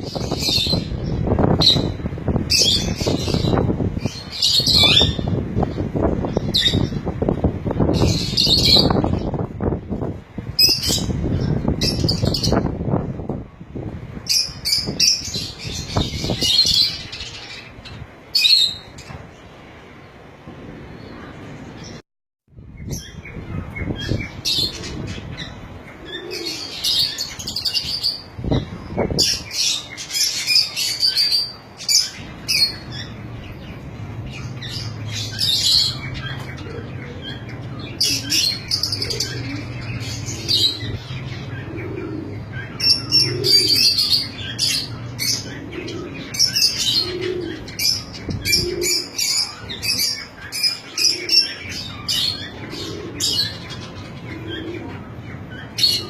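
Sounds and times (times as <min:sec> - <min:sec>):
lovebirds chirping: 0:00.0 - 0:09.7, 0:22.7 - 0:56.0.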